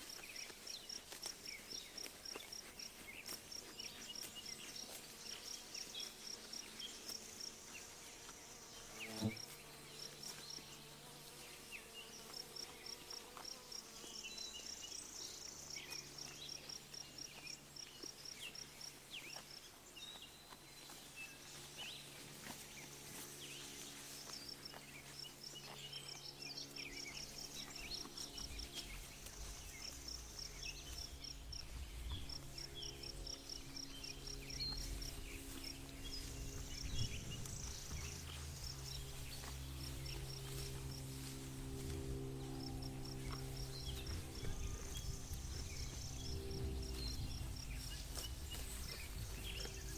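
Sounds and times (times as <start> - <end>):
low steady drone: 22.1 - 49.9.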